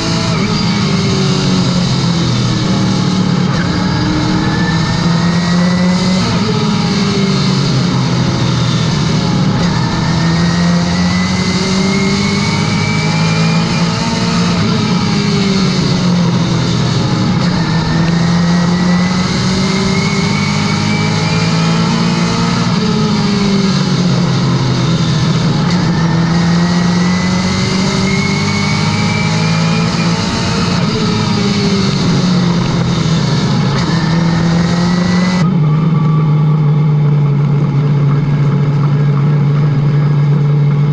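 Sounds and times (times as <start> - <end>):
race car engine at speed: 0.0 - 40.9
faint rising whine: 1.3 - 10.8.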